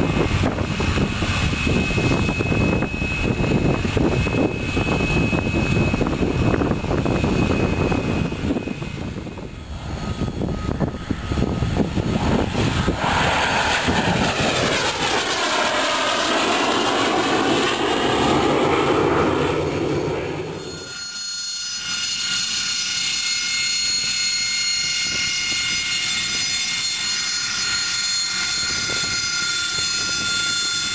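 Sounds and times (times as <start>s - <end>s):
aircraft passing by: 0.0s - 21.2s.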